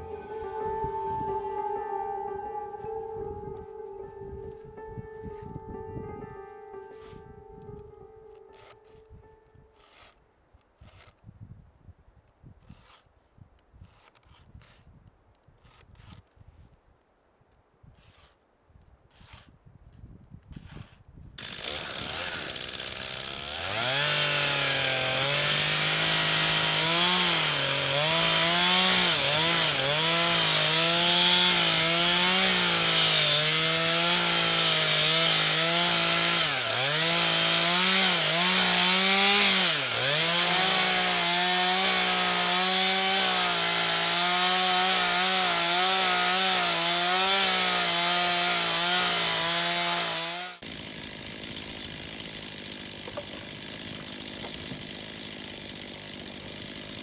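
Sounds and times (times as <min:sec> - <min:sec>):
chainsaw cutting log: 0:08.3 - 0:11.3, 0:12.5 - 0:16.7, 0:17.9 - 0:19.6, 0:20.5 - 0:57.0.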